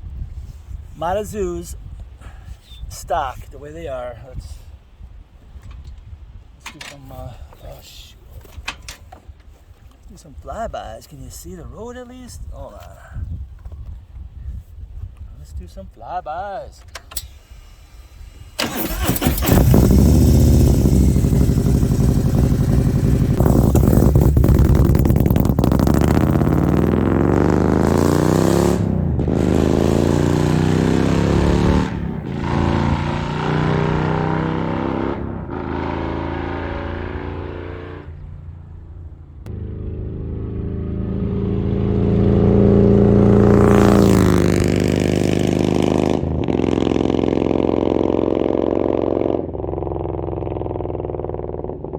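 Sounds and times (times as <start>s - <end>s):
motorcycle accelerating past: 18.6s - 38.6s, 39.5s - 51.9s.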